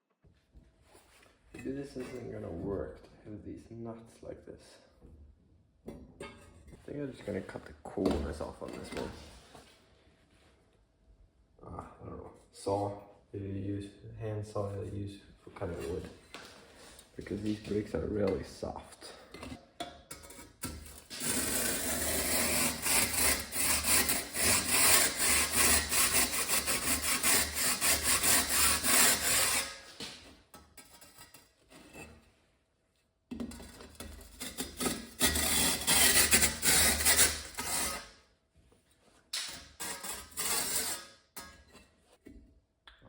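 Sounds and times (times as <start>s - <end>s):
hand saw cutting firebrick: 20.1s - 30.2s, 33.6s - 38.1s, 39.4s - 41.7s.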